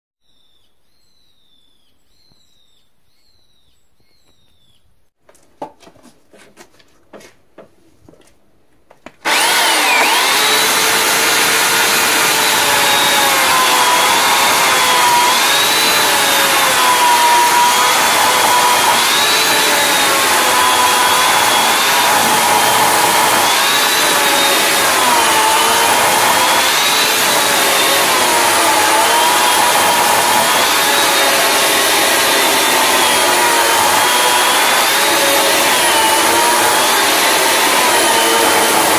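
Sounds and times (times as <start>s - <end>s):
faint bird chirps: 0.2s - 5.0s
chainsaw cutting wood: 9.2s - 38.9s.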